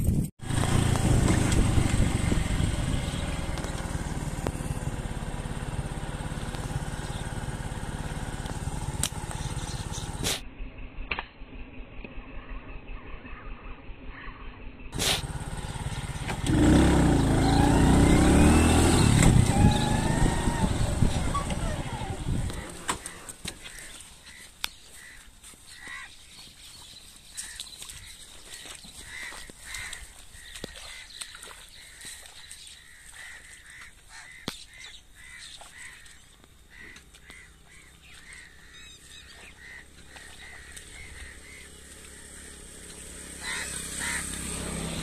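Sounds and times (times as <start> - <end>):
footsteps through wet grass: 20.6 - 44.8.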